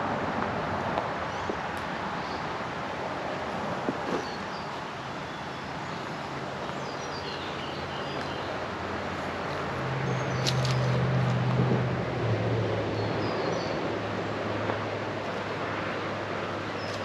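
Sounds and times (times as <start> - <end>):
road noise: 0.0 - 17.0
passing vehicle engine hum: 7.8 - 17.0.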